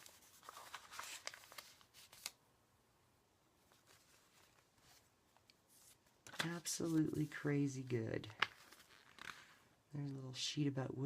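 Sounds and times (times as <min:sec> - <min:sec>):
paper pages rustling: 0:00.0 - 0:02.4, 0:03.6 - 0:09.6.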